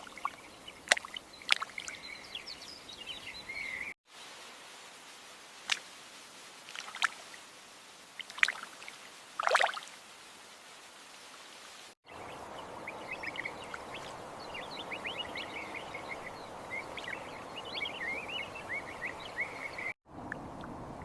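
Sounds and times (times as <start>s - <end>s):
small birds chirping: 0.0s - 4.0s, 11.1s - 20.8s
steady outdoor hiss: 0.0s - 21.0s.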